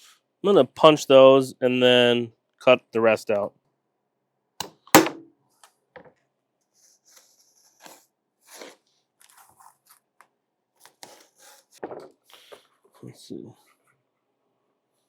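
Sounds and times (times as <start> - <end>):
hole punch snapping shut: 4.6 - 5.3.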